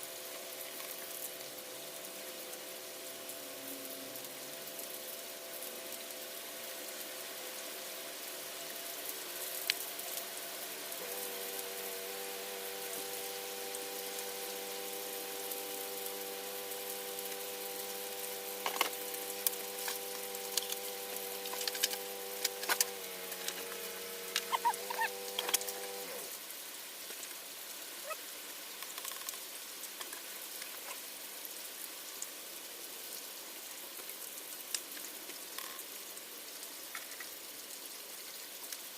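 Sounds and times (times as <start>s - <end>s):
steady mechanical hum: 0.0s - 26.4s
constant hiss: 0.0s - 38.9s.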